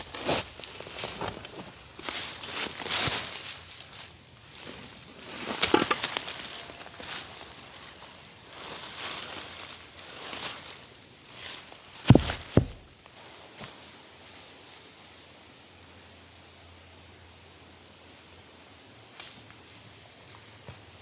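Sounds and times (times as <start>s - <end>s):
rustling and crunching handling noises: 0.0s - 13.2s
heavy thuds: 12.1s - 13.0s.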